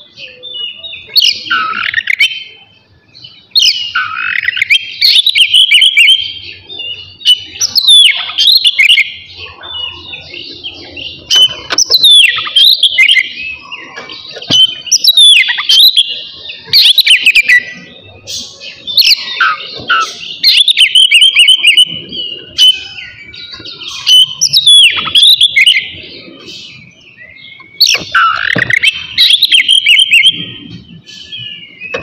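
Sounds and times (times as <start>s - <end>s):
bird singing whistles and rough notes: 0.0s - 32.0s.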